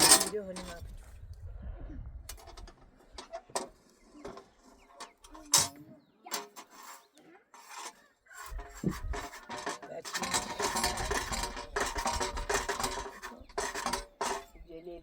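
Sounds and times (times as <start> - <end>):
knocks and scrapes: 0.0 - 1.1, 2.3 - 14.8.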